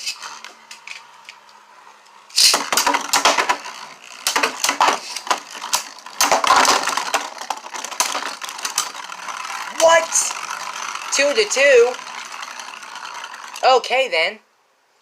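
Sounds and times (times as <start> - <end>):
spinning tops clattering in plastic stadium: 2.3 - 13.9.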